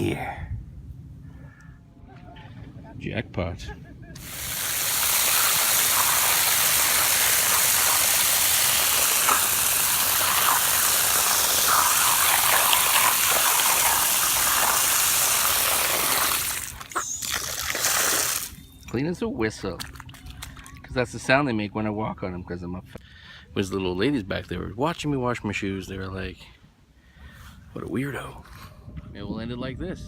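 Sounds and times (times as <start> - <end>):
water gushing from a tap: 4.2 - 18.6.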